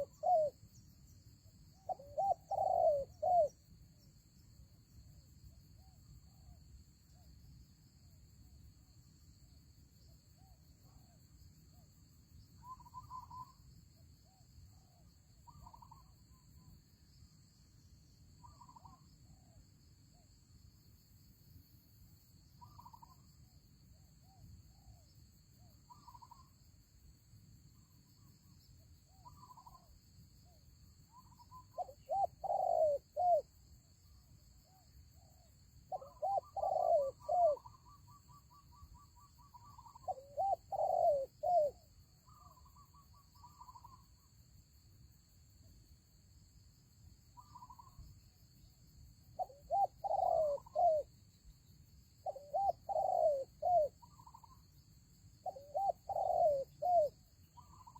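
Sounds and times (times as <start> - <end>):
doves cooing: 0.0 - 0.5, 1.9 - 3.5, 31.8 - 33.4, 36.0 - 37.7, 39.6 - 41.8, 49.4 - 51.1, 52.2 - 54.6, 55.4 - 57.9.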